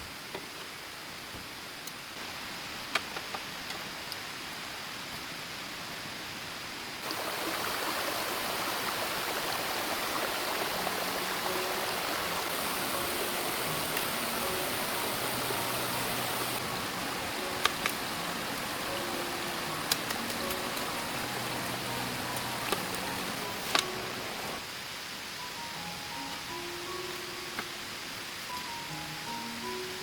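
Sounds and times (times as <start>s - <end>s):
running water rushing: 7.0s - 25.7s.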